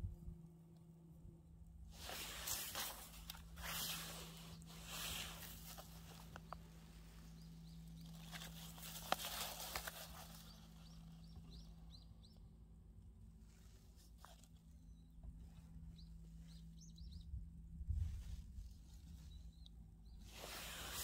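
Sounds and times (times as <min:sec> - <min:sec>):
rustling noise: 0:01.9 - 0:11.2, 0:20.2 - 0:21.0
small birds chirping: 0:02.0 - 0:12.8, 0:13.4 - 0:21.0.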